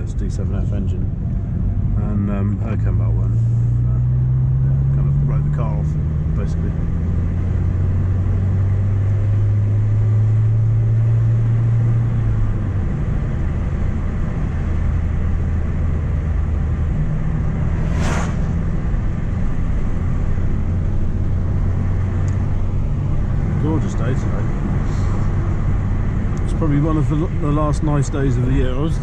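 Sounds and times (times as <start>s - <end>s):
brief hiss: 17.7s - 18.8s.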